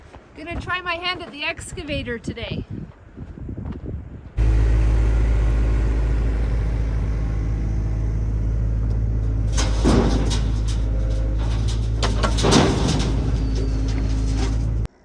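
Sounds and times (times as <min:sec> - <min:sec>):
excavator diesel engine running: 0:04.4 - 0:15.0
clanks and knocks: 0:08.8 - 0:15.0.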